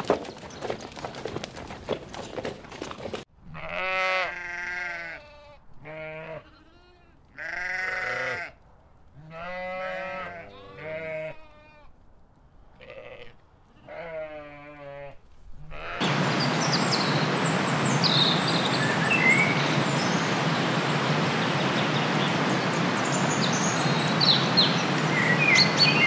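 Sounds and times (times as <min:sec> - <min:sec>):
rough outdoor noise: 0:00.0 - 0:26.0
lamb bleating: 0:03.4 - 0:08.6, 0:09.2 - 0:11.9, 0:12.8 - 0:16.0.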